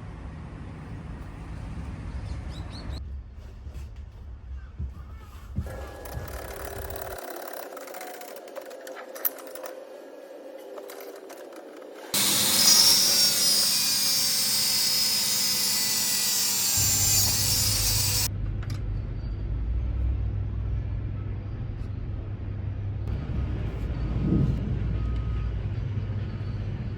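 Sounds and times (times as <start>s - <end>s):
power tool running: 5.6s - 18.3s
low steady rumble: 18.3s - 26.9s.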